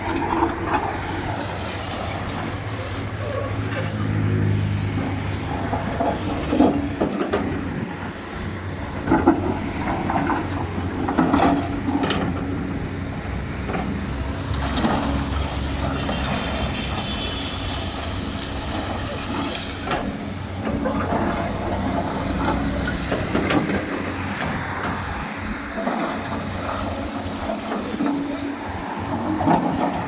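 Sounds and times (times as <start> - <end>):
excavator engine running: 0.0 - 30.0
machine knocks and clatters: 13.6 - 30.0.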